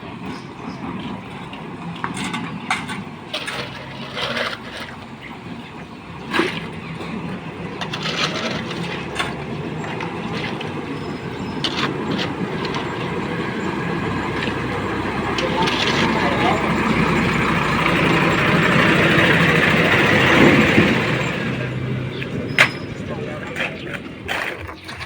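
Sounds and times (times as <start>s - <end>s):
heavy engine running: 0.0s - 25.0s
knocks clacks and scrapes: 0.2s - 25.0s.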